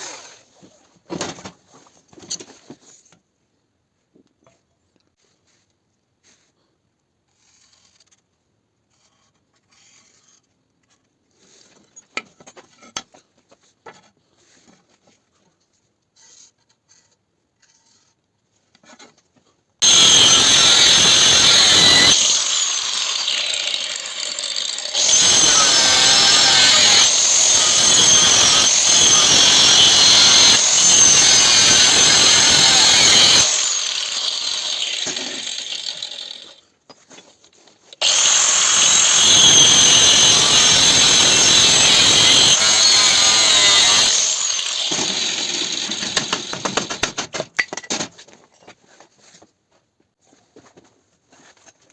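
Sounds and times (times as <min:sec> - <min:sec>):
power tool grinding steel: 0:19.8 - 0:36.6, 0:38.0 - 0:47.1.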